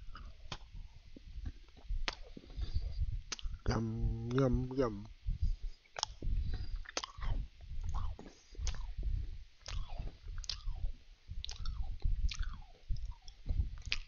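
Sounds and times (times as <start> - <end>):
person chewing cookies: 0.0 - 5.0, 5.6 - 14.0
mouth clicks: 1.7 - 2.6, 3.3 - 4.9, 5.9 - 9.0, 9.6 - 14.0.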